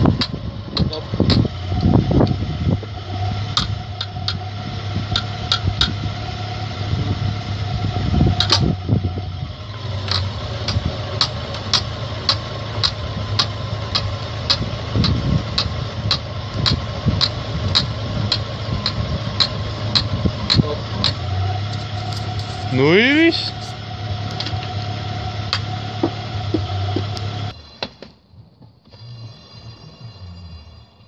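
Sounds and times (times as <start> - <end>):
car engine running: 0.0 - 27.8
sharp metallic clicks: 5.1 - 6.0, 9.7 - 24.8.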